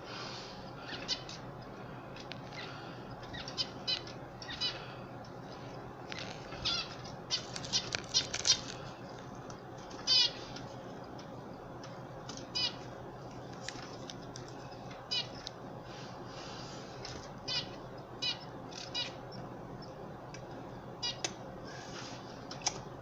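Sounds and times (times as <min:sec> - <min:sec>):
canaries chirping: 0:00.8 - 0:01.6, 0:02.4 - 0:13.2, 0:14.6 - 0:16.1, 0:17.3 - 0:22.0.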